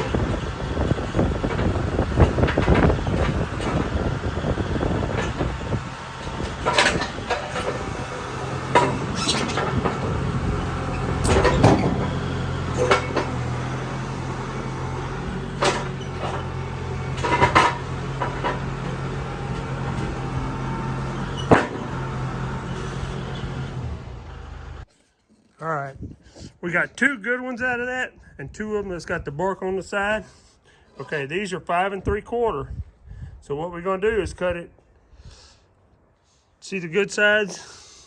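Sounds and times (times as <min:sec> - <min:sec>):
engine running at low speed: 0:00.0 - 0:24.9.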